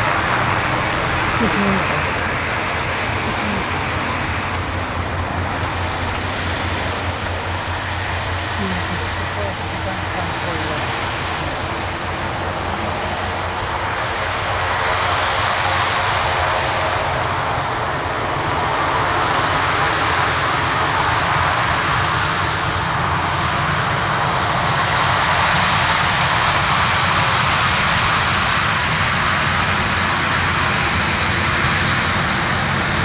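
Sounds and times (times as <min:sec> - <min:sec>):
aircraft engines running: 0:00.0 - 0:33.0.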